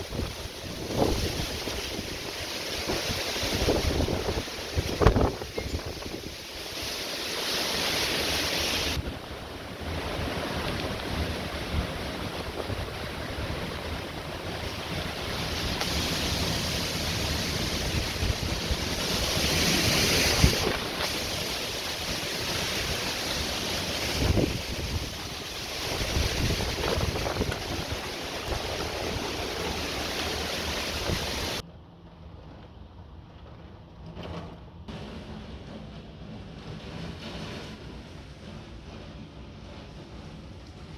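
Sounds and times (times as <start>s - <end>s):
heavy rain: 0.0s - 31.6s
storm wind blowing hard: 0.0s - 31.6s
wind buffeting microphone: 0.0s - 31.6s.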